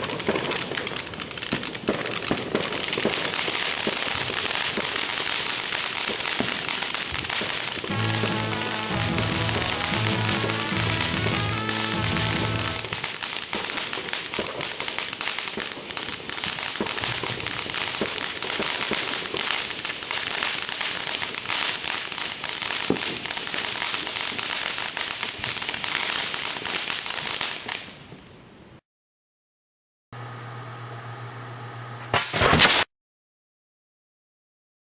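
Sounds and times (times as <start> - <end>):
dense crackling: 7.8 - 13.2
sharp pops: 32.0 - 32.9.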